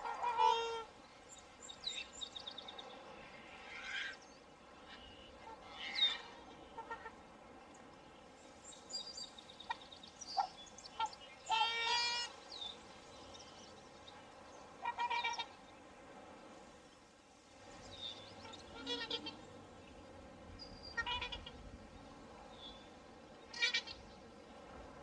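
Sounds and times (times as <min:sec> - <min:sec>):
swans honking: 0:00.0 - 0:00.9, 0:04.8 - 0:07.3, 0:09.6 - 0:12.4, 0:14.8 - 0:15.6, 0:18.4 - 0:19.6, 0:20.9 - 0:21.7, 0:23.5 - 0:24.1
small birds chirping: 0:01.0 - 0:03.2, 0:07.6 - 0:15.9, 0:17.7 - 0:24.6.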